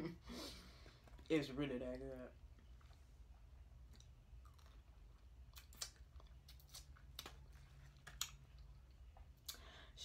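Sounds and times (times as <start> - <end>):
person chewing crunchy food: 2.5 - 9.6.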